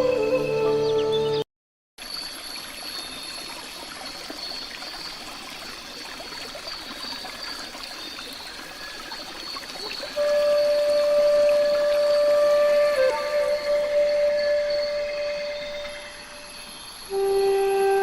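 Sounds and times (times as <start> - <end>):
water trickling: 2.0 - 18.0.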